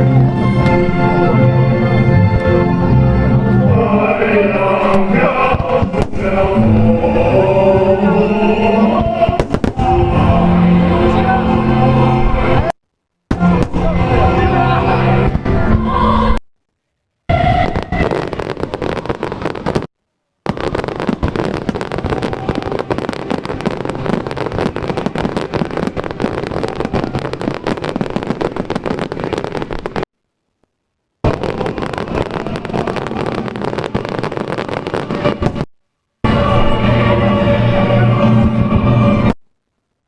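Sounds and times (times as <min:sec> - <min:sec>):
fireworks crackling and popping: 0:04.0 - 0:08.2, 0:08.9 - 0:10.6, 0:12.6 - 0:15.8, 0:17.3 - 0:30.1, 0:31.2 - 0:36.7.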